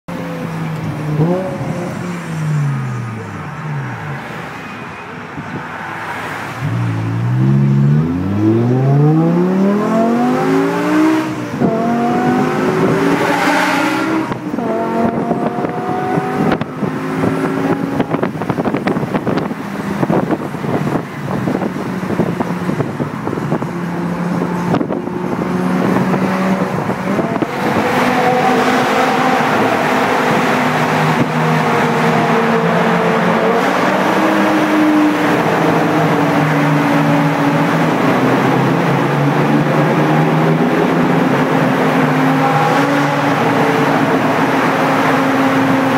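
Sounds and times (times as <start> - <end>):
car engine revving and accelerating: 0.4 - 3.2, 6.0 - 45.9.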